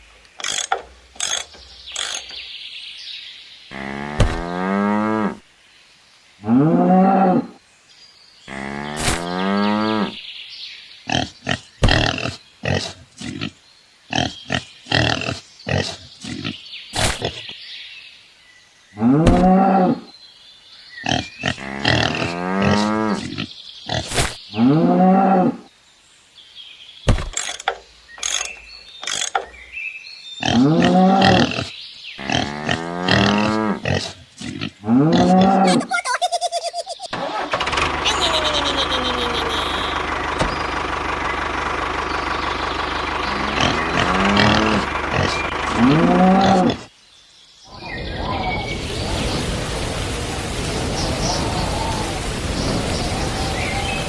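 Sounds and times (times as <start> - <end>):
sharp clicks and knocks: 27.1 - 29.6
cows mooing: 32.2 - 34.0, 43.2 - 46.9.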